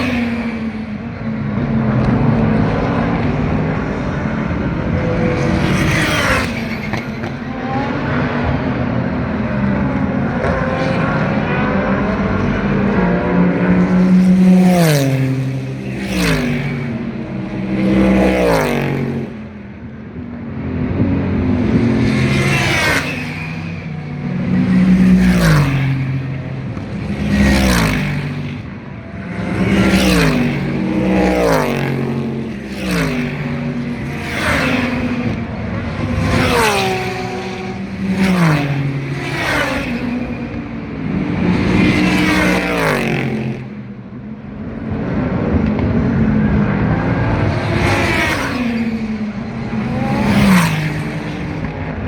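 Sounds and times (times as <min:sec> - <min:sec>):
race cars passing and downshifting: 0:00.0 - 0:52.0.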